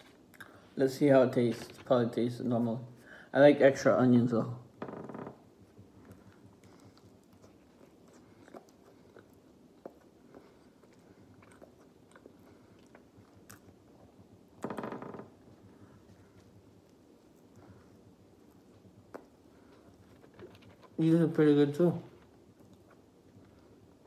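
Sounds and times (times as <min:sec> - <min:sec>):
person chewing close to microphone: 0:05.4 - 0:14.6, 0:15.3 - 0:21.0, 0:22.1 - 0:24.0.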